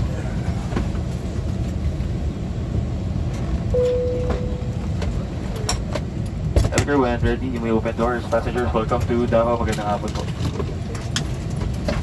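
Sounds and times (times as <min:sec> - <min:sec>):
low cabin rumble: 0:00.0 - 0:12.0
brief steady tone: 0:03.7 - 0:05.0.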